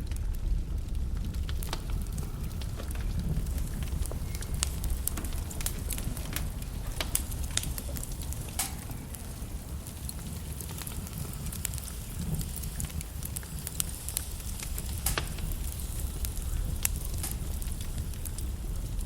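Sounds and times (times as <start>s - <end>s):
fire crackling and popping: 0.0s - 19.0s
low rumble of fire: 0.0s - 19.0s.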